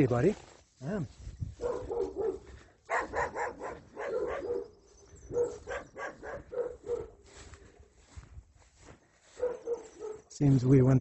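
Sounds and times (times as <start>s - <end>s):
dog barking: 1.6s - 7.2s, 9.3s - 10.3s.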